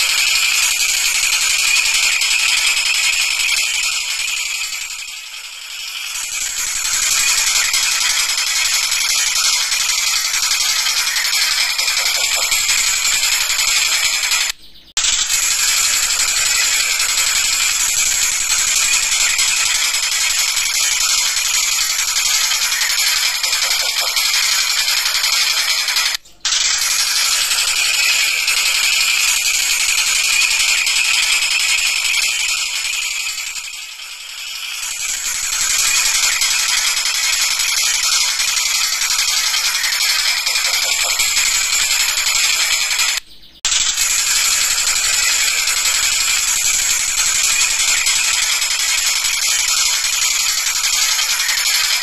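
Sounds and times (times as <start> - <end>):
kingfisher rattling chatter: 0.0 - 52.0.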